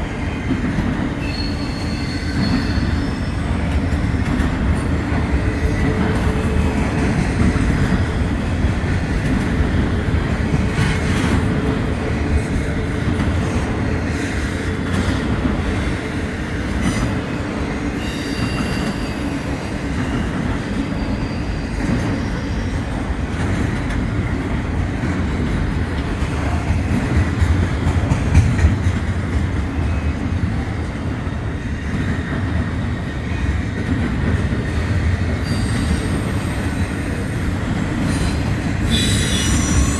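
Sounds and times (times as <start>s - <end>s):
freight train wheels rumbling: 0.0s - 39.9s
rail joint clicks: 0.0s - 39.9s
high wheel squeal: 1.2s - 4.0s, 17.9s - 22.8s, 35.4s - 39.9s.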